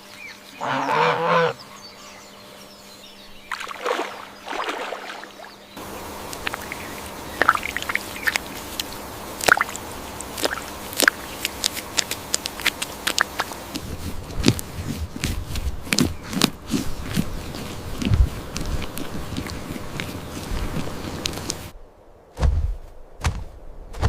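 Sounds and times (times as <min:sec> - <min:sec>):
farm animal calling: 0:00.5 - 0:02.2, 0:05.8 - 0:14.6
steady background noise: 0:01.4 - 0:22.4.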